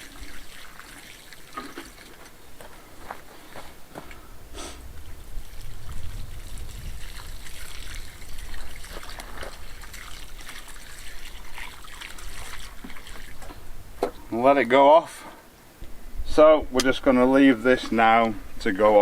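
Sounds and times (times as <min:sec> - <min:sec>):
water trickling into hole: 0:00.0 - 0:02.6, 0:04.9 - 0:14.3.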